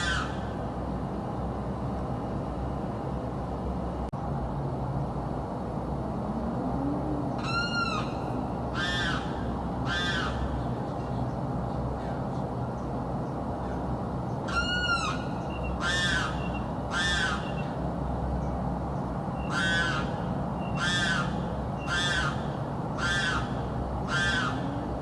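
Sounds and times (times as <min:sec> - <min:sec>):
bird screaming: 0:00.0 - 0:00.5, 0:07.4 - 0:10.6, 0:14.5 - 0:17.8, 0:19.4 - 0:24.8.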